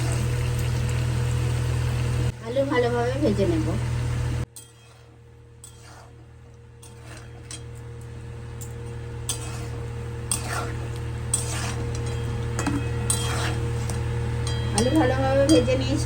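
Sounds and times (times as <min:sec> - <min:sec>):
steady low hum: 0:00.0 - 0:16.0
spatula scraping a pan: 0:04.5 - 0:07.8, 0:09.0 - 0:15.7.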